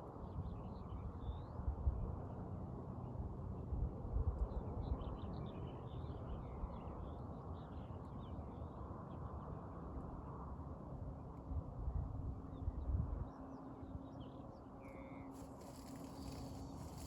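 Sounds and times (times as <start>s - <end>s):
small birds chirping: 14.8s - 17.0s.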